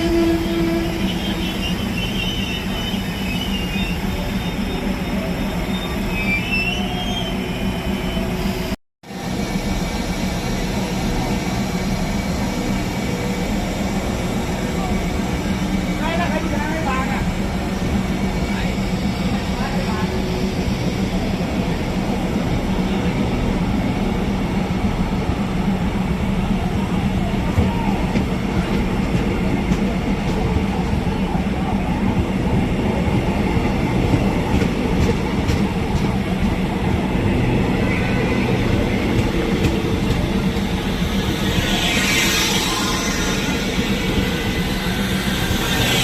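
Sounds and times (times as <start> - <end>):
high wheel squeal: 0.0 - 8.7, 37.7 - 46.0
diesel railcar engine running: 0.0 - 46.0.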